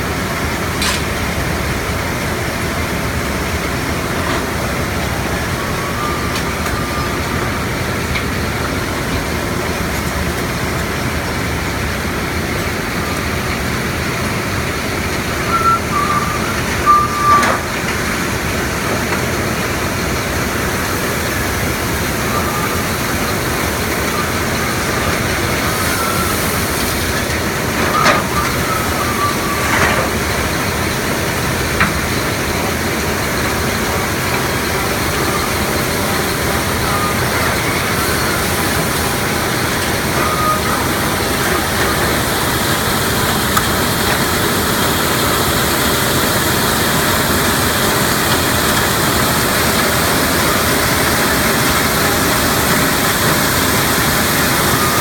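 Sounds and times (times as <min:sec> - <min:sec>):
heavy machinery rumbling: 0:00.0 - 0:55.0
high machine squeals: 0:03.4 - 0:08.7, 0:15.4 - 0:17.8, 0:19.8 - 0:55.0.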